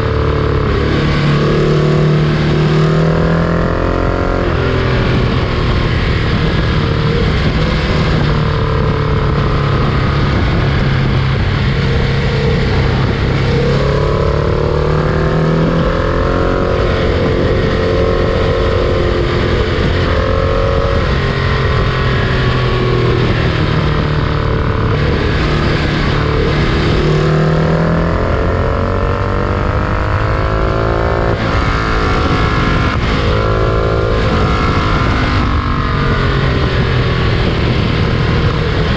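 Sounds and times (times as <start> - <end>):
freight train rumbling: 0.0 - 29.2.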